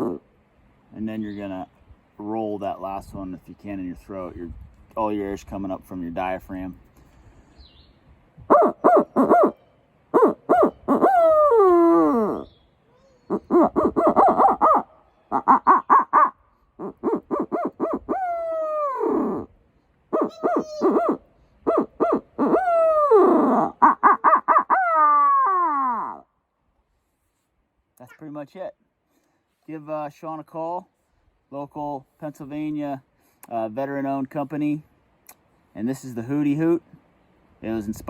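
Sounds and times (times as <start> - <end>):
owl call hooter: 0.0 - 0.3, 8.4 - 26.3.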